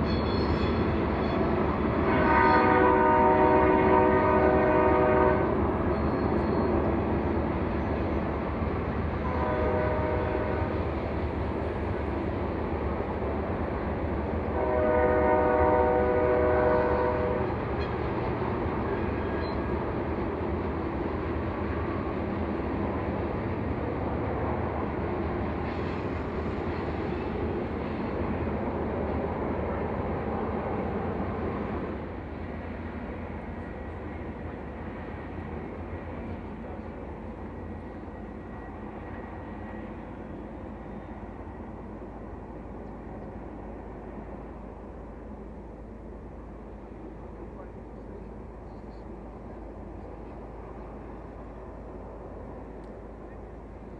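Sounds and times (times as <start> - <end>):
locomotive horn blasts: 0.0 - 5.6, 9.2 - 10.8, 14.6 - 17.5
passing train rumble: 0.0 - 53.9.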